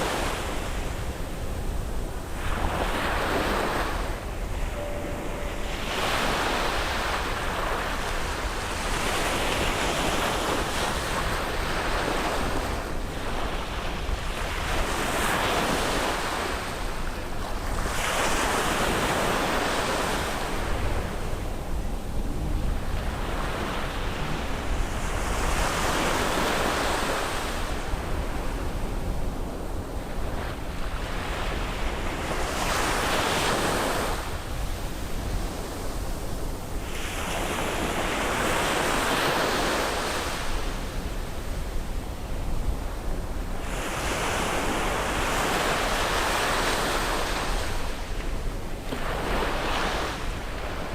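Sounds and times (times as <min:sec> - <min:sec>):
ocean waves breaking: 0:00.0 - 0:29.0.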